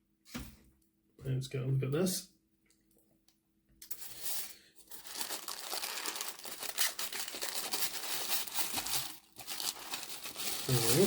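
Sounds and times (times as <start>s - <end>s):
packaging crinkling and rustling: 3.9s - 11.0s.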